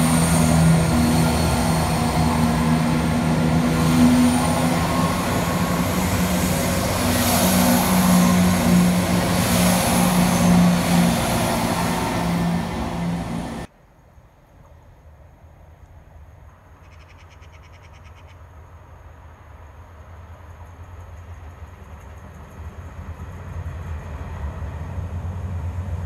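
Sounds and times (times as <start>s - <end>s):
train passing on rails: 0.0s - 13.7s, 18.4s - 26.0s.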